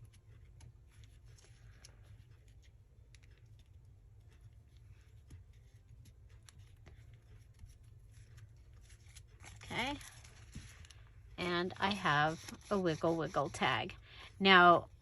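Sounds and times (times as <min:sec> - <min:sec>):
paper taps and rustles: 0:00.1 - 0:11.0.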